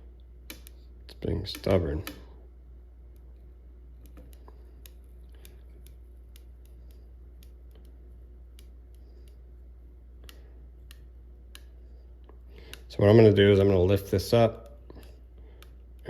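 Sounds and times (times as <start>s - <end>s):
steady low hum: 0.0s - 16.0s
faint clicks and ticks: 0.2s - 2.4s, 3.1s - 16.0s.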